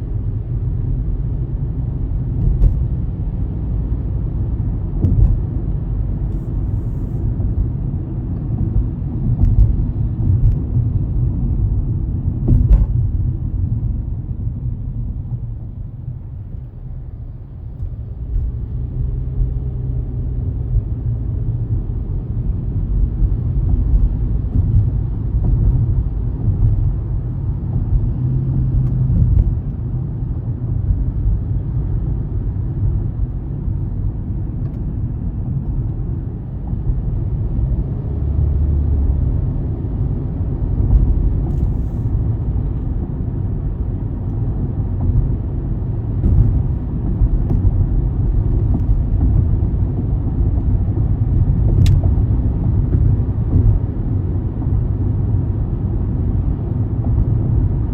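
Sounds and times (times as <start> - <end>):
car driving rumble: 0.0 - 57.9.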